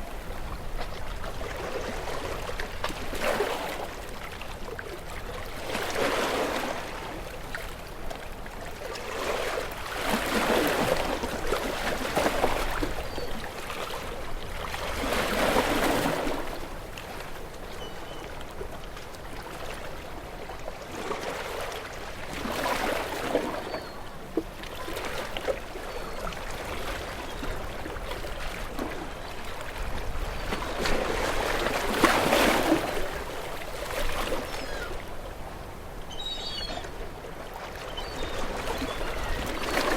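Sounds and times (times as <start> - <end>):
ocean waves breaking: 0.0 - 4.4, 5.5 - 7.7, 8.9 - 17.5, 24.4 - 39.9.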